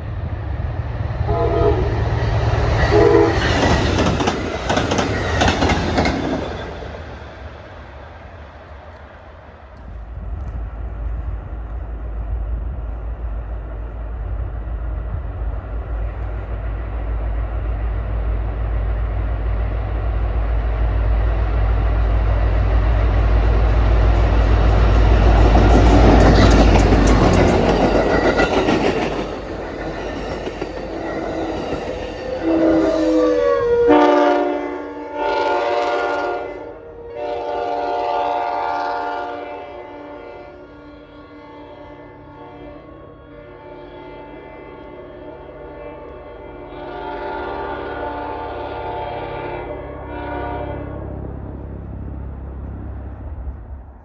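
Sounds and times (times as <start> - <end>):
train locomotive rumbling: 0.0 - 54.0
multi-tone train horn: 1.2 - 4.2, 30.9 - 51.2
train wheels clattering: 2.0 - 7.7, 22.9 - 33.2.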